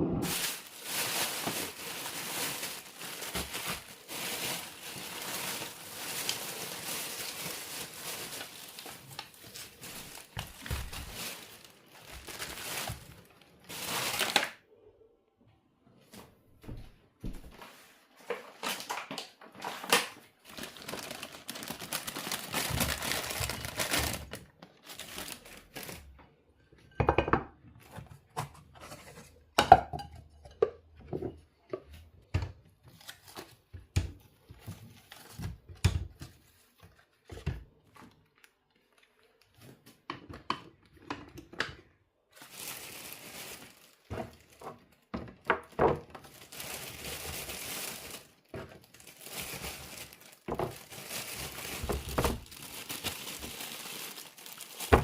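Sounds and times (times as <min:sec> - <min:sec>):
packaging crinkling and tearing: 0:00.2 - 0:14.6, 0:18.4 - 0:26.2, 0:32.8 - 0:33.7, 0:34.6 - 0:37.2, 0:42.3 - 0:55.0.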